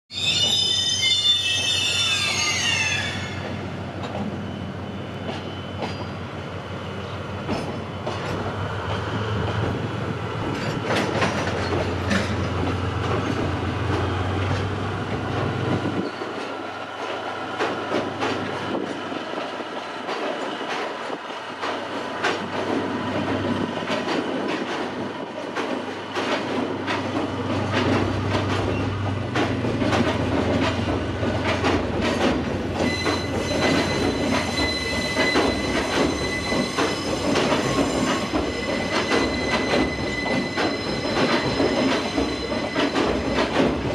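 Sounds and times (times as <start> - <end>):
high squeal: 0.1 - 3.7, 4.3 - 6.3, 32.8 - 43.2.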